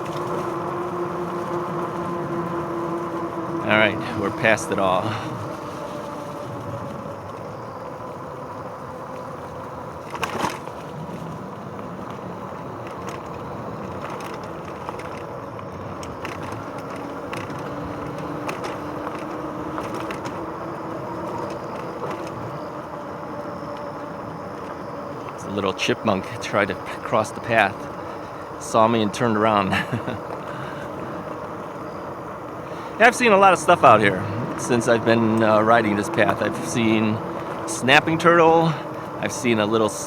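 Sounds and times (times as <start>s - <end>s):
bike tyres rolling on path: 0.0s - 40.0s
faint electric motor hum: 0.0s - 40.0s
small clicks: 4.6s - 39.9s.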